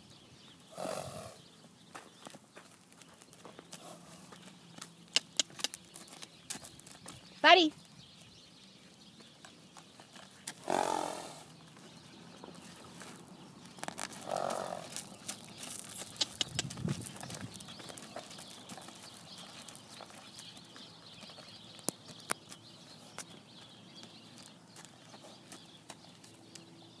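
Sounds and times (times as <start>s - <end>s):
pony snorting: 0.7s - 1.4s, 3.8s - 4.3s, 10.6s - 11.5s, 14.2s - 15.2s.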